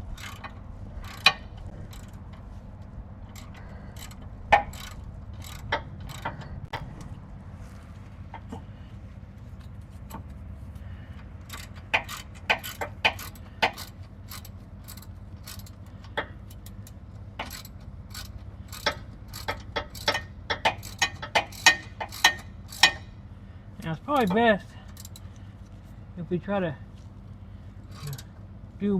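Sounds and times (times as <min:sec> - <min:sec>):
steady low hum: 0:00.0 - 0:28.9
ratchet wrench clicking: 0:00.1 - 0:02.5, 0:03.2 - 0:06.8, 0:11.1 - 0:23.2, 0:24.1 - 0:25.8, 0:27.9 - 0:28.3.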